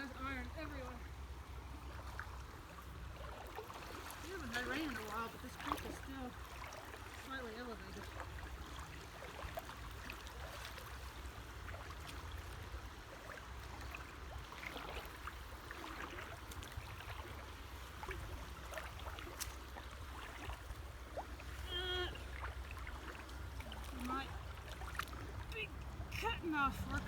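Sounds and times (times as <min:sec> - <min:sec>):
water sloshing and splashing: 0:00.0 - 0:27.0
low steady rumble: 0:15.2 - 0:27.0.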